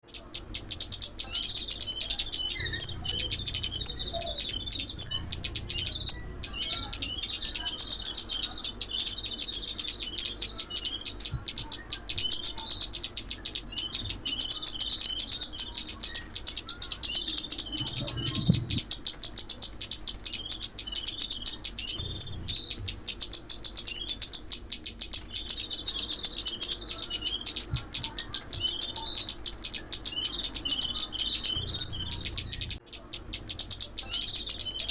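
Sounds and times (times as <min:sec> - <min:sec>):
bird chirping and ticking: 0:00.0 - 0:34.9.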